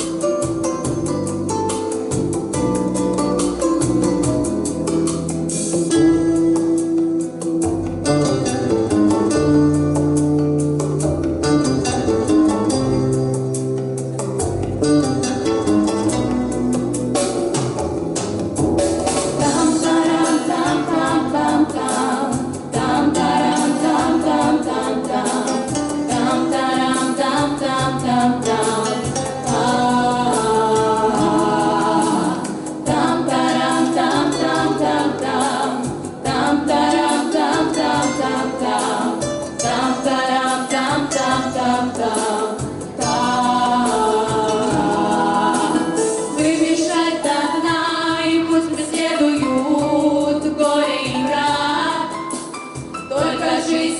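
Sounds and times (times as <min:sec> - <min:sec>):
vocal quartet singing in harmony: 0:19.1 - 0:53.9.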